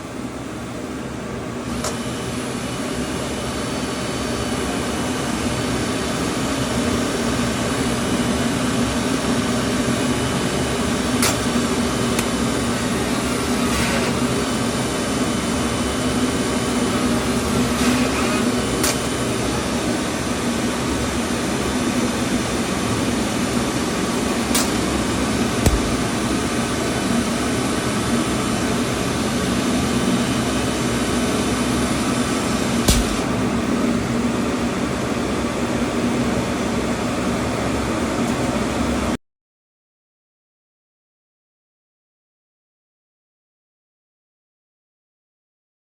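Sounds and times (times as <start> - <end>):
machine humming: 8.0 - 34.9
dull knocks: 25.7 - 26.1.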